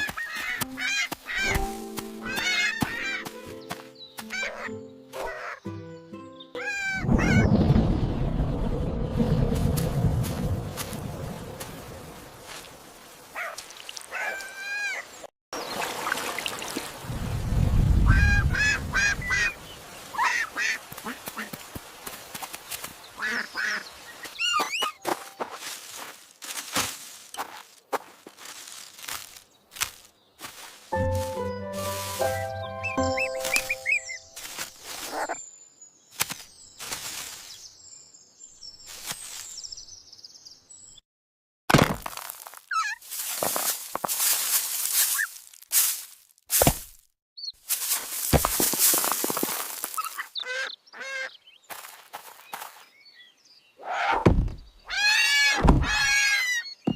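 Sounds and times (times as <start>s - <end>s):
low rumble: 7.6s - 11.5s.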